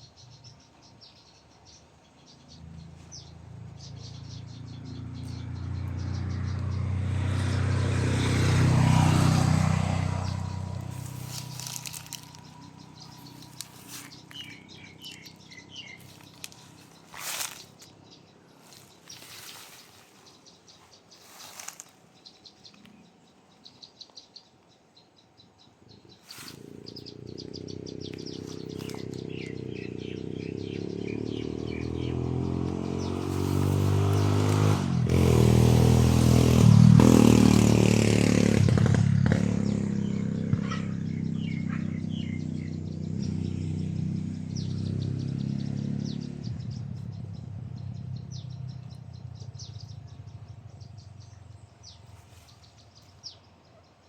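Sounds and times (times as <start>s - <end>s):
motor vehicle engine: 0.0s - 23.6s, 25.9s - 53.8s
small birds chirping: 0.0s - 54.0s.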